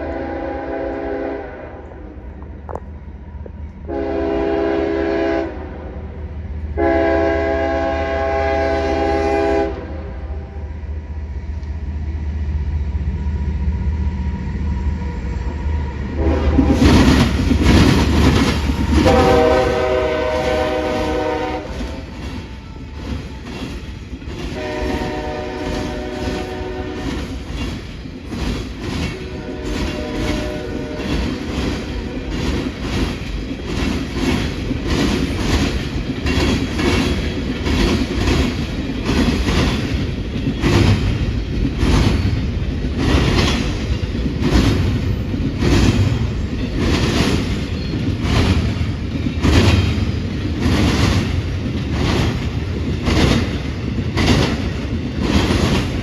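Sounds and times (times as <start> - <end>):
train horn blasts: 0.0 - 2.2, 3.9 - 6.0, 6.8 - 10.7, 16.2 - 16.8, 19.0 - 23.0, 24.5 - 27.2, 29.1 - 32.4
train wheels clacking over crossing: 14.0 - 56.0.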